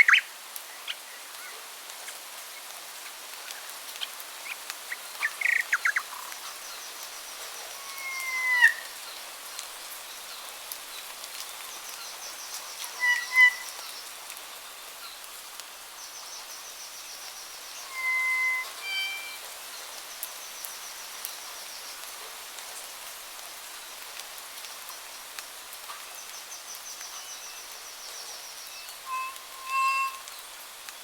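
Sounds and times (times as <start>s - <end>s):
birds chirping: 0.0s - 0.2s, 4.4s - 8.7s, 16.2s - 22.0s
steady hiss: 0.0s - 31.0s
faint high bird trills: 5.2s - 6.6s, 7.4s - 8.9s, 12.8s - 14.0s, 17.2s - 20.3s, 27.4s - 30.5s
rising whistled bird call: 7.8s - 8.9s, 13.0s - 13.8s, 17.4s - 19.9s, 28.2s - 30.4s.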